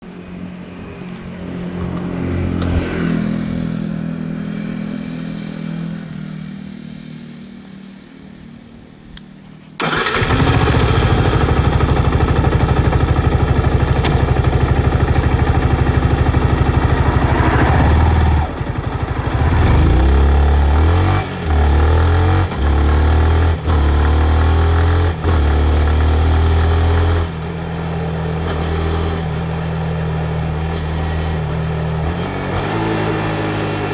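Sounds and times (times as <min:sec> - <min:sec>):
motorcycle engine revving: 0:09.8 - 0:33.9.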